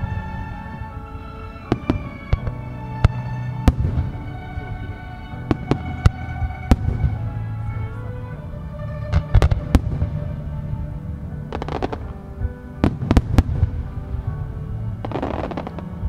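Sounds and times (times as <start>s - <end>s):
fireworks bursting with bangs: 0.0s - 16.0s
music playing: 0.0s - 16.0s.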